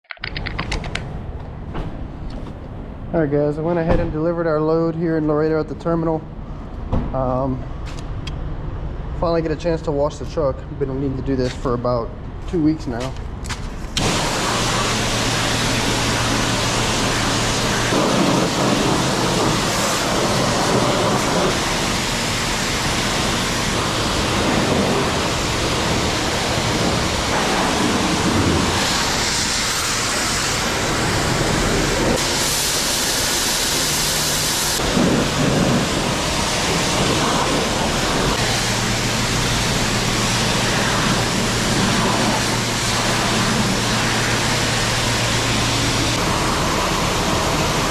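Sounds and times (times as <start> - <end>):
high-pressure water spraying: 14.0 - 47.9.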